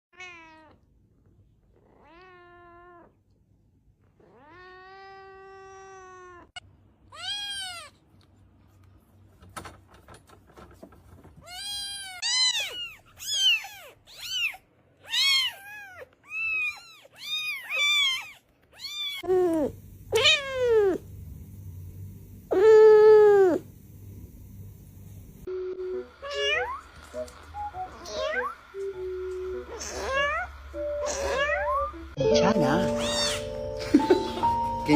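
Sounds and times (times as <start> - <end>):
cat meowing: 0.1 - 0.8, 1.8 - 3.1, 4.2 - 8.0, 11.4 - 21.0, 26.2 - 26.8, 27.9 - 28.6, 29.7 - 32.0, 32.8 - 33.6.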